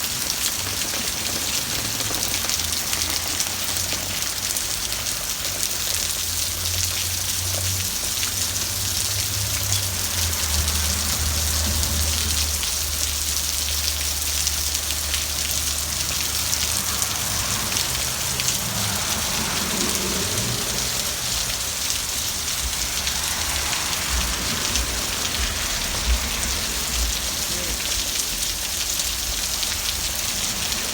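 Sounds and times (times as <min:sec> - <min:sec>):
hard rain pouring: 0:00.0 - 0:30.9.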